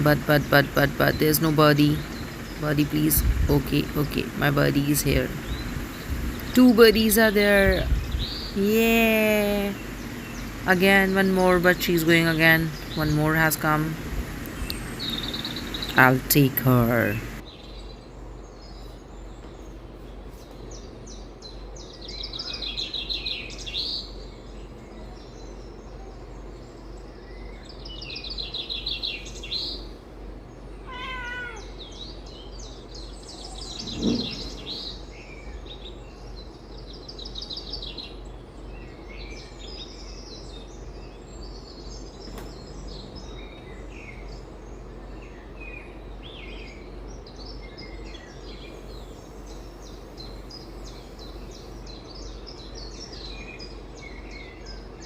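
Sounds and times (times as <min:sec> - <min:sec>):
songbirds trilling on television: 0:00.0 - 0:55.0
steady low hum: 0:00.0 - 0:55.0
cat meowing: 0:30.8 - 0:31.8.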